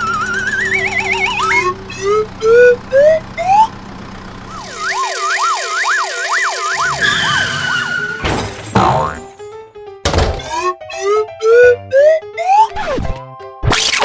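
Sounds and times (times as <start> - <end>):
cartoon siren wailing: 0.0 - 3.7, 4.5 - 8.2
rising cartoon whistles: 0.0 - 3.7, 4.5 - 8.2.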